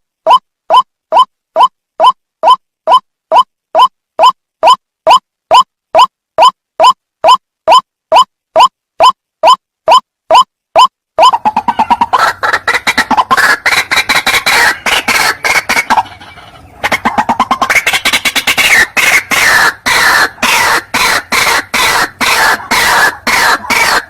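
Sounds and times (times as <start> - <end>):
waterhen calling harsh notes: 10.8 - 24.0.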